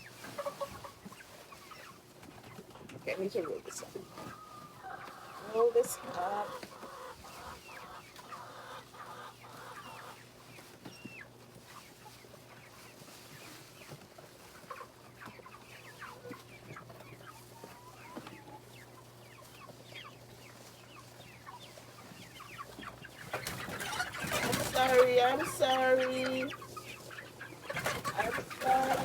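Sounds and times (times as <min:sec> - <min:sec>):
chickens peeping and clucking: 0:00.0 - 0:29.0
tower fan humming: 0:03.0 - 0:09.7, 0:23.2 - 0:29.0.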